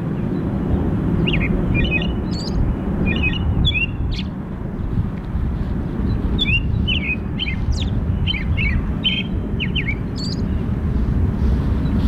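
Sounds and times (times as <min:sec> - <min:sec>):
train low rumble: 0:00.0 - 0:12.0
bird chirping: 0:01.2 - 0:04.4, 0:06.0 - 0:10.7.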